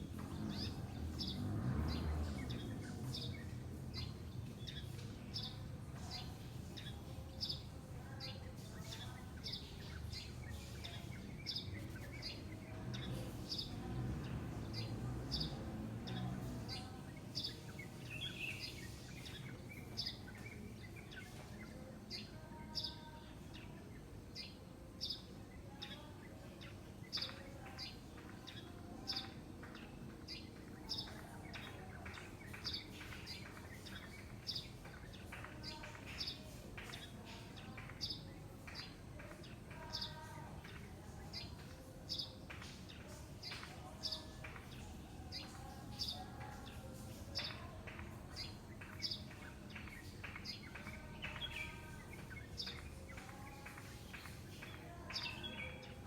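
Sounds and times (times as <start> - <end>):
birds chirping: 0.0 - 56.0
low background noise: 0.0 - 56.0.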